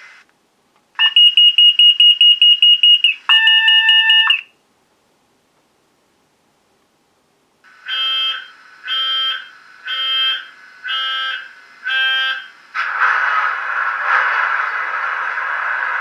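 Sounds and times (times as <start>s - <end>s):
loud steady hiss: 0.0s - 0.8s, 4.6s - 16.0s
pitched warning beeps: 1.0s - 4.5s.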